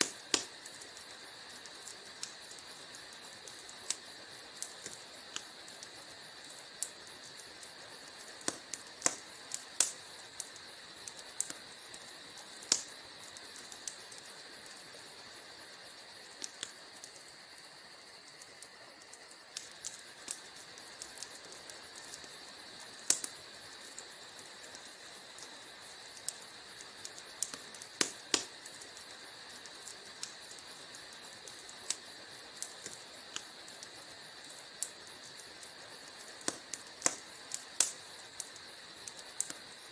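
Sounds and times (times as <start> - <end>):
fire crackling in fireplace: 0.0 - 39.9
fire popping and snapping: 0.0 - 39.9.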